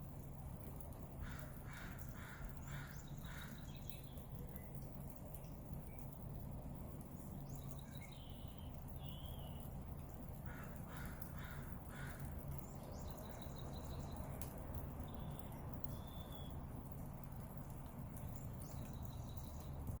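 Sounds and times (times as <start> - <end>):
birds chirping: 10.4 - 14.4, 15.0 - 16.6, 18.1 - 19.9.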